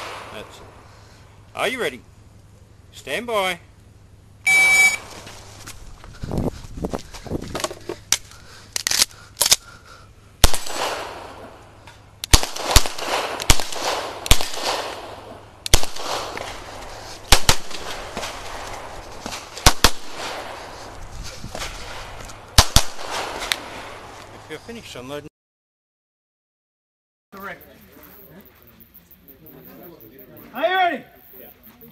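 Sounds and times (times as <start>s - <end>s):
pistol shots: 0.0s - 0.7s, 10.4s - 11.6s, 12.2s - 20.7s, 21.9s - 23.7s.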